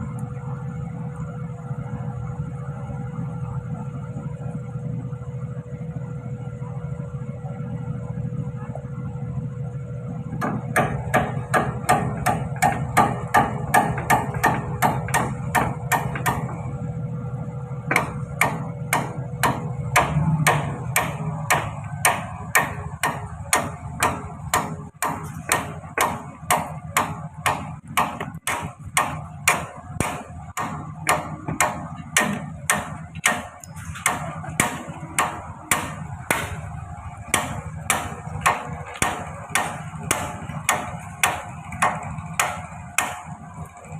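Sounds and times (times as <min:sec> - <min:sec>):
low machine hum: 0:00.0 - 0:43.9
hammer striking metal: 0:10.4 - 0:16.6, 0:17.9 - 0:43.4.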